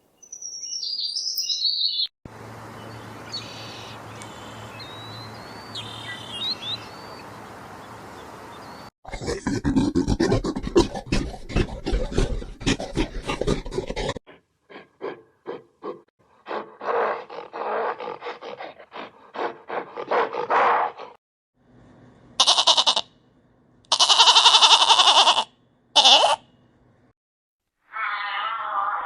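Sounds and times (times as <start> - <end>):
shrill drawn-out cries: 22.4 - 23.0, 23.9 - 26.4
short animal calls: 26.0 - 26.4.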